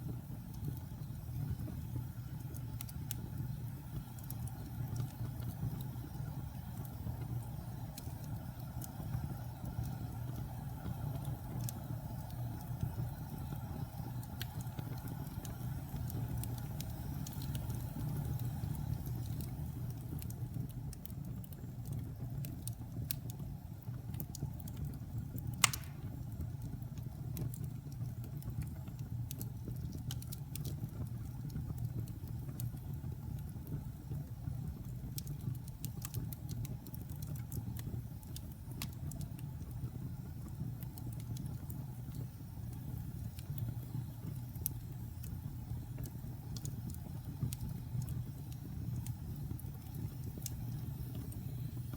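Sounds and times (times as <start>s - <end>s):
wood fire crackling: 0.0s - 51.9s.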